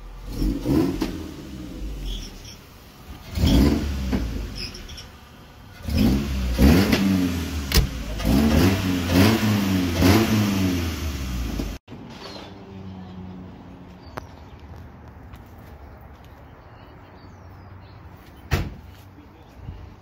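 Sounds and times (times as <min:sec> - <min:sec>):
car engine idling and revving: 0:00.0 - 0:11.9.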